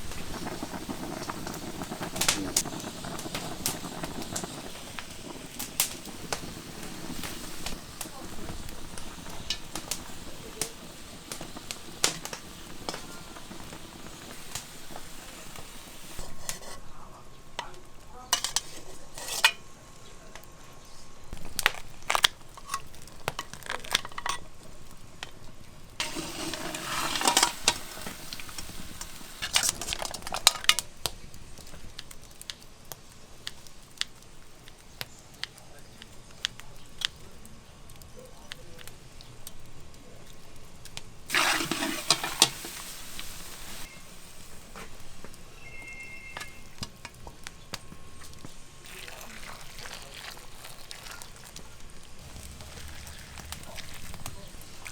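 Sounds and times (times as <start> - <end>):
pots dishes and utensils clinking: 0.0 - 20.5, 21.4 - 25.4, 26.0 - 31.0, 41.3 - 51.6.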